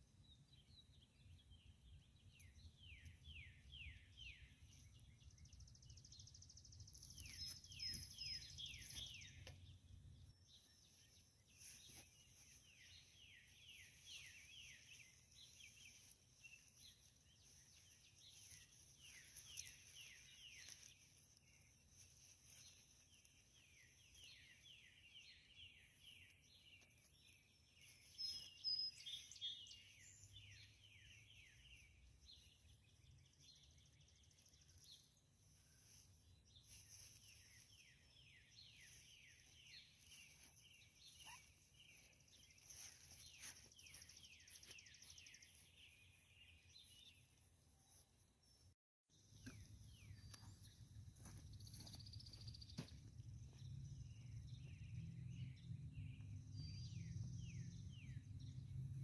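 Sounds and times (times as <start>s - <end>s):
faint whistled birdsong: 0.0s - 59.0s
high bird chirps: 2.3s - 35.1s, 35.9s - 47.3s.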